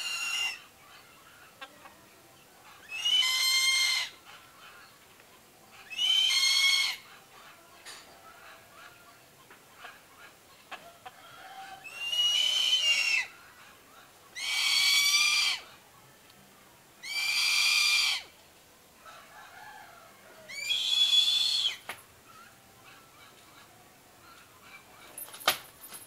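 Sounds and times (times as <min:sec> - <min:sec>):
bird high-pitched drawn-out call: 0:00.0 - 0:01.6, 0:02.7 - 0:05.0, 0:05.7 - 0:07.2, 0:11.8 - 0:13.4, 0:14.3 - 0:15.7, 0:17.0 - 0:18.3, 0:20.5 - 0:24.8.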